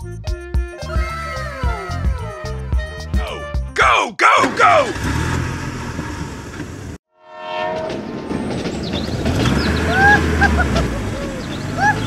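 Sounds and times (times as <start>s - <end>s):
horn-like tone: 7.1s - 8.0s
vehicle rumble sound effect: 8.0s - 12.0s.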